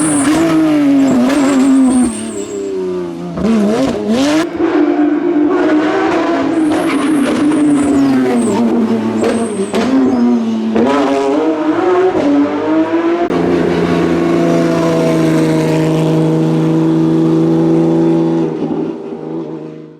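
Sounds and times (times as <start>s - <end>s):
tyre squeals: 0.0s - 4.6s, 6.3s - 10.6s
car engine revving hard: 0.0s - 19.9s.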